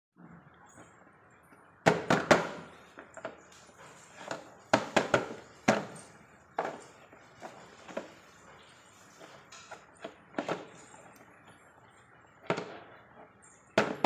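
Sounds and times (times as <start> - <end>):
hard objects knocking: 4.2 - 8.1, 13.7 - 14.0.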